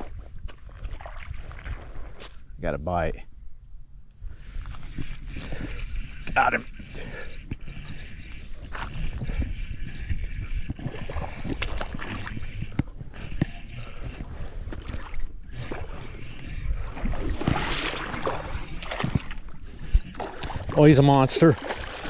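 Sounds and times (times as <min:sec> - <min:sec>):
water splashing: 0:00.0 - 0:02.2, 0:10.7 - 0:22.0.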